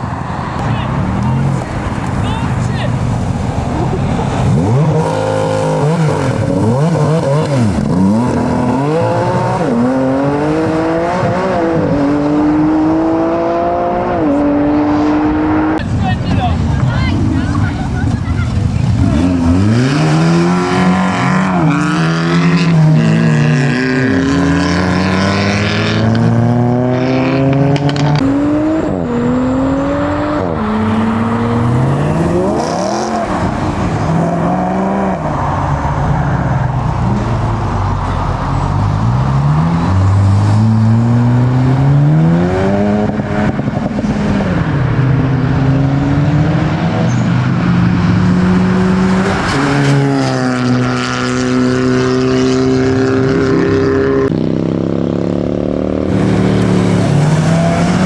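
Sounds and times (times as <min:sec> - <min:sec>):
cars accelerating hard: 0:00.0 - 0:58.0.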